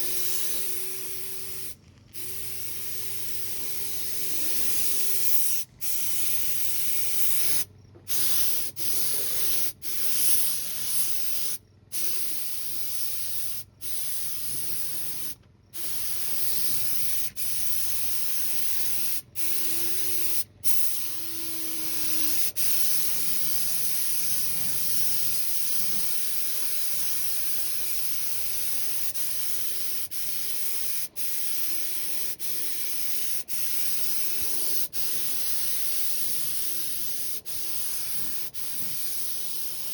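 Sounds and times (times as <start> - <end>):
paint spray gun hissing: 0.0 - 39.9.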